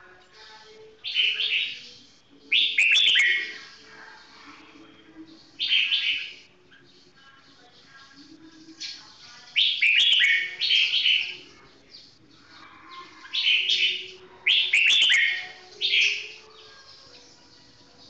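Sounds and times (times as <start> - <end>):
bird singing quick phrases: 2.5 - 3.6, 8.8 - 12.2, 13.2 - 16.6.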